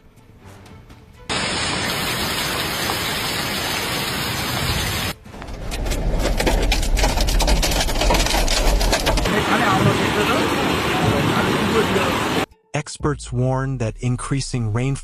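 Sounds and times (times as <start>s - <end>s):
heavy rain hissing: 1.3s - 5.2s, 9.3s - 12.5s
raindrops ticking on surfaces: 1.3s - 5.5s.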